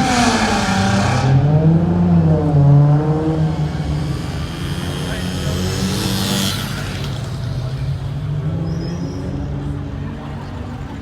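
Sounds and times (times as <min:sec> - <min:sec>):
car engine revving: 0:00.0 - 0:08.7.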